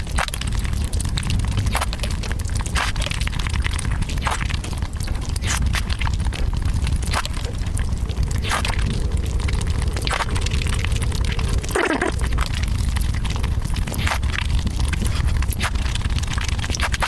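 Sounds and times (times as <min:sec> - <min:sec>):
eating crackling clicks: 0:00.0 - 0:17.0
low rumble: 0:06.0 - 0:16.7.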